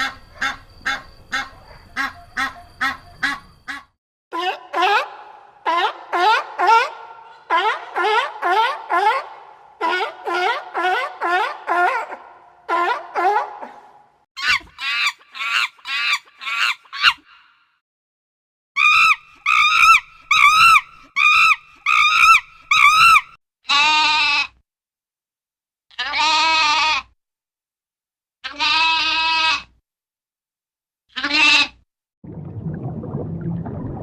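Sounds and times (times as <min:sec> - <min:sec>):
animal bleating: 0:23.7 - 0:24.6, 0:25.9 - 0:27.2, 0:28.4 - 0:29.7, 0:31.1 - 0:31.8.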